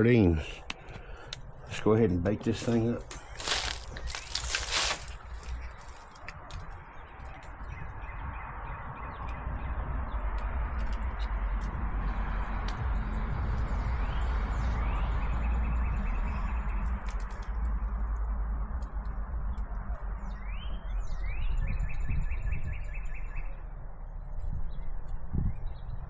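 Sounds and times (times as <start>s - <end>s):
songbird singing trill: 2.6s - 10.3s, 12.9s - 17.9s, 19.6s - 26.0s
steady low rumble: 7.7s - 26.0s.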